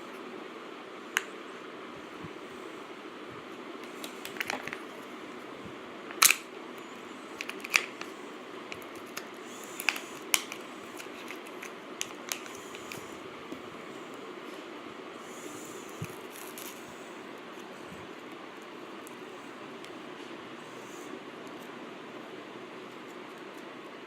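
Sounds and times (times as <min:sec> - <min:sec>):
plastic parts clicking: 0:07.4 - 0:08.1.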